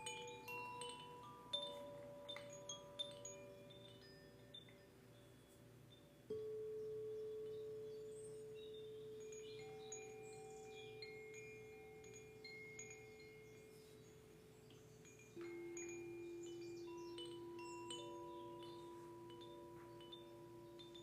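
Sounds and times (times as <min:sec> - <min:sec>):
high tinkling chimes: 0:00.0 - 0:21.0
lower singing bowl tone: 0:06.3 - 0:21.0
singing bowl ringing: 0:06.3 - 0:21.0.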